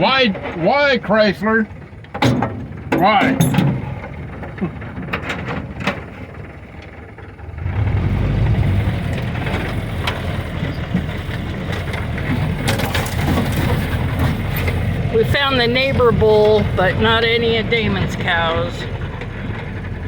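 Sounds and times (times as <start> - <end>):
jeep engine rumbling: 0.0 - 20.0
clicks and knocks: 2.0 - 6.3.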